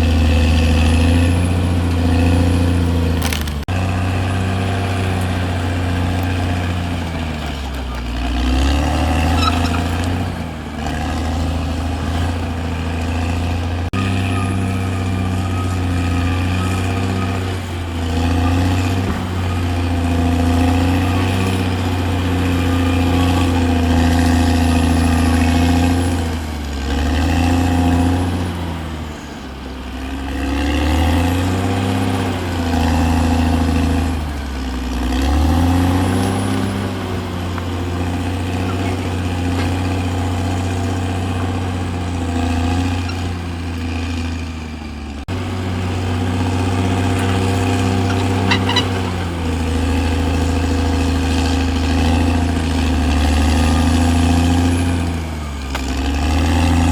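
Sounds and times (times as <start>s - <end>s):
bulldozer diesel engine working: 0.0s - 56.9s.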